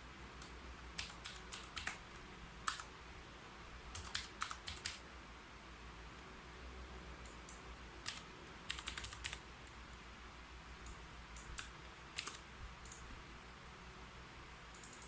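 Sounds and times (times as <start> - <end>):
computer keyboard typing: 0.4 - 2.9, 3.9 - 5.0, 7.3 - 9.4, 10.8 - 13.1, 14.7 - 15.0.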